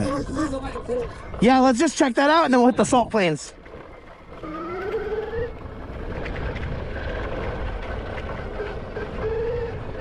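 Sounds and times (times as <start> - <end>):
tyres rumbling on dirt: 0.0 - 10.0
wind noise on microphone: 2.6 - 10.0
electric motor whine: 4.3 - 6.2.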